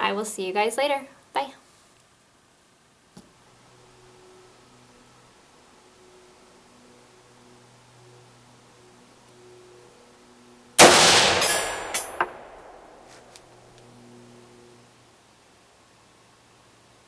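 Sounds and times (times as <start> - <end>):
sharp clinks: 10.8 - 13.1
rifle shot with echo: 10.8 - 13.2.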